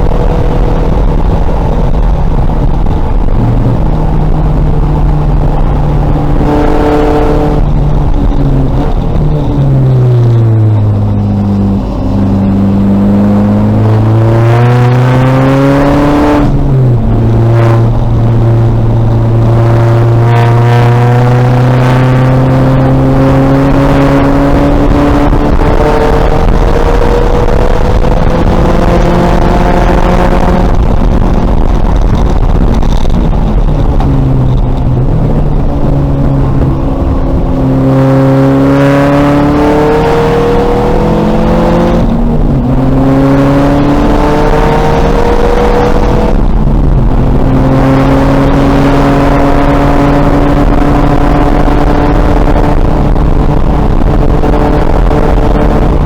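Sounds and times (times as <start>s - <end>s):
race car engine accelerating: 0.0s - 56.0s
road and wind noise: 0.0s - 56.0s.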